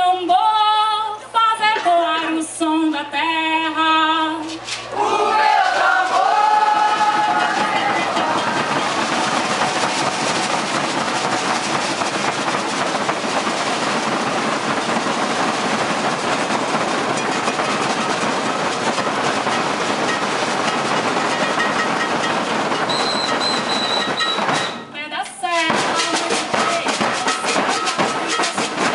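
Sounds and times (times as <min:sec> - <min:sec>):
percussion ensemble drumming: 0:05.1 - 0:28.9
whistle: 0:22.9 - 0:25.0.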